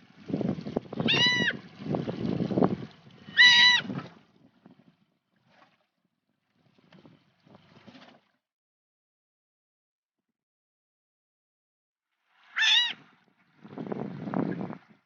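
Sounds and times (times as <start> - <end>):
boat and water rumble: 0.0 - 8.5, 12.2 - 15.0
sea otter high-pitched call: 1.0 - 1.6, 3.3 - 3.9, 12.5 - 13.0.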